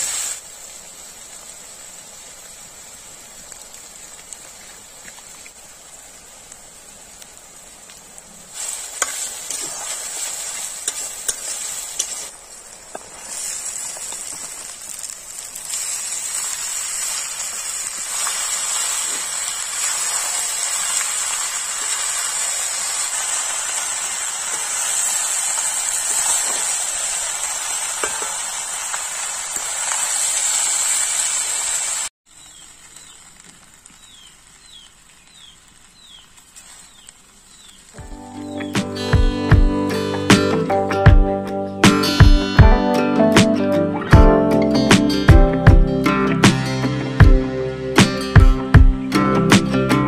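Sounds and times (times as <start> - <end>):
rice sizzling in a pan: 0.0 - 39.1
guitar music: 38.0 - 50.0.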